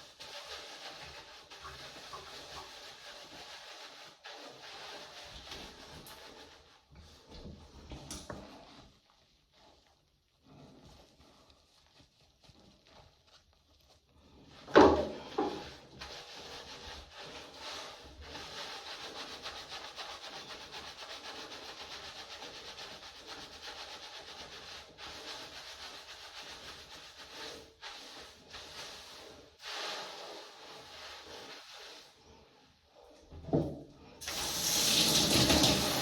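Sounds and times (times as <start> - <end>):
hands scrubbing hair: 0.0 - 32.7, 34.2 - 36.0.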